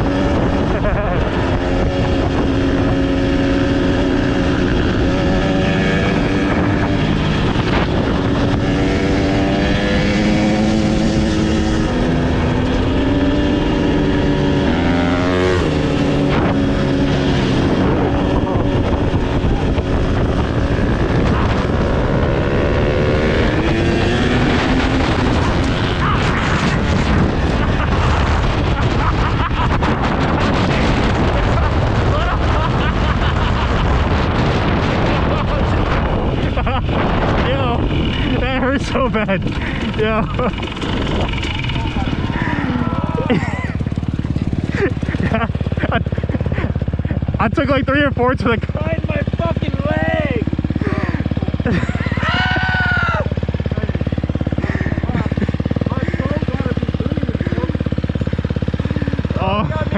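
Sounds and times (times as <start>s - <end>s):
wind on microphone: 0.0s - 47.4s
dirt bike engine revving: 0.0s - 59.9s.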